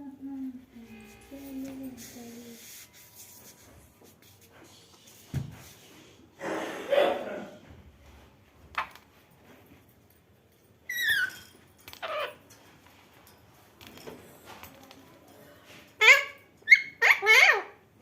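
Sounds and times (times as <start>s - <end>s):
parrot squawking: 10.9s - 12.4s, 16.0s - 17.8s.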